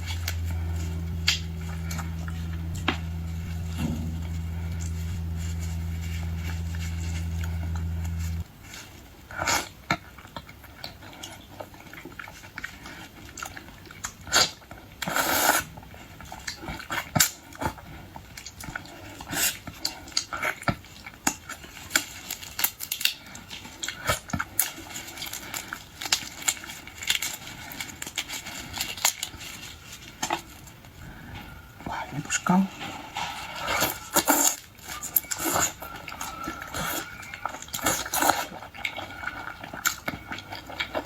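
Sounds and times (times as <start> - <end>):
chewing and smacking: 9.4 - 15.2, 33.9 - 41.0.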